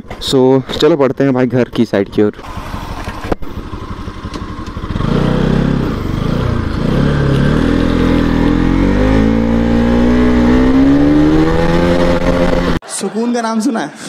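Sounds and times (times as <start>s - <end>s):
motorcycle engine accelerating: 2.0s - 12.8s.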